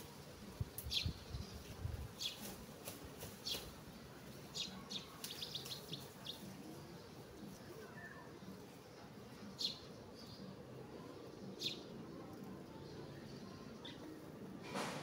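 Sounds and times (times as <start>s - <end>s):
bird chirping: 9.3s - 14.2s.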